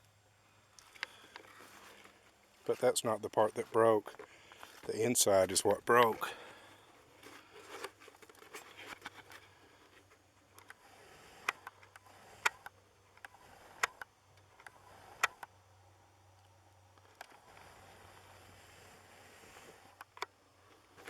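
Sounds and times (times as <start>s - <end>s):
sharp clicks: 11.4s - 15.5s.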